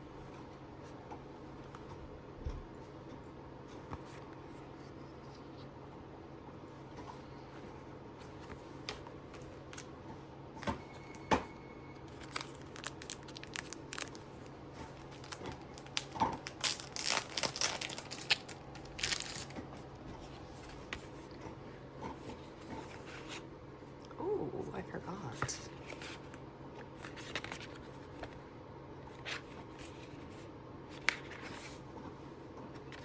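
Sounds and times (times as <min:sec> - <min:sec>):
packaging crinkling and tearing: 0:12.1 - 0:19.7.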